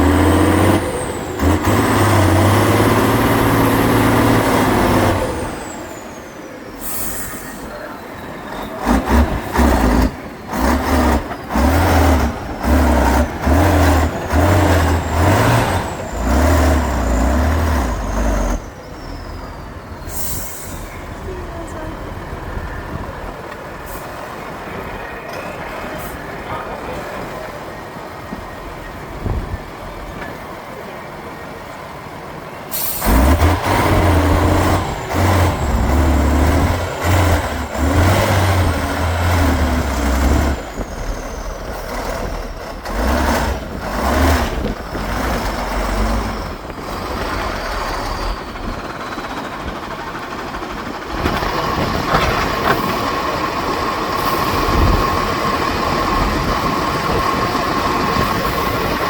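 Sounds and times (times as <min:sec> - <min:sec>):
truck engine revving hard: 0:00.0 - 0:07.6, 0:08.6 - 0:20.8, 0:32.7 - 0:59.0.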